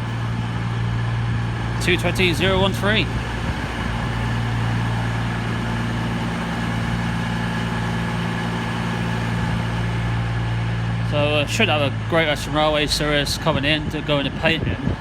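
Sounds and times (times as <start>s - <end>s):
train diesel engines idling: 0.0s - 15.0s.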